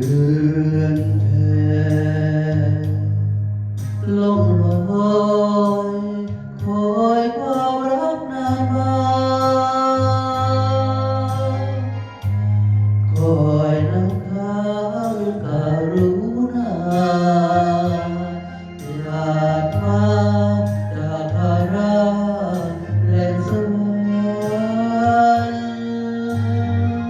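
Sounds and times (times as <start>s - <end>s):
low drone: 0.0s - 27.0s
man singing wavering phrases: 13.2s - 27.0s.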